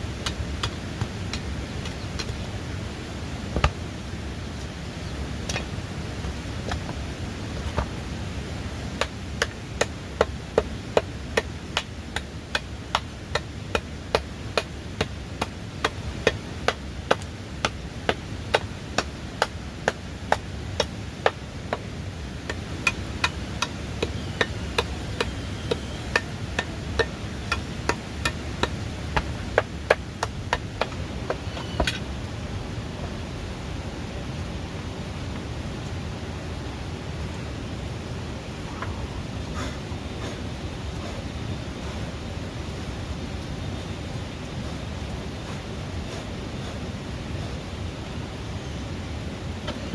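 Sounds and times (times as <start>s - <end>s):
low background noise: 0.0s - 49.9s
hand tool strikes: 9.0s - 21.9s, 22.5s - 32.0s.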